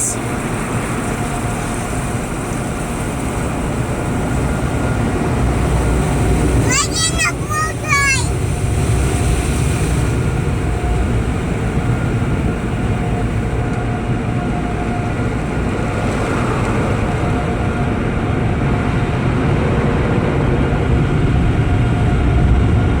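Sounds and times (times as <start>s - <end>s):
car wash rumbling roar: 0.0s - 23.0s.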